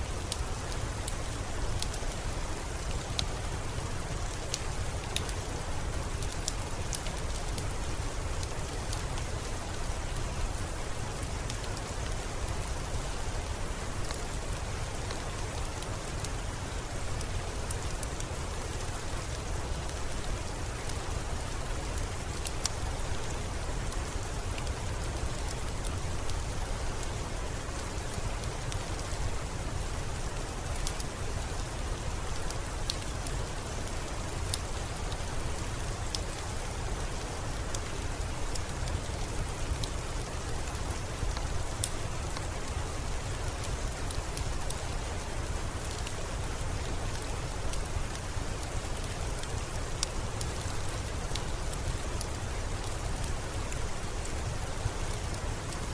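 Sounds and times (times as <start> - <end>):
rain pattering: 0.0 - 55.9.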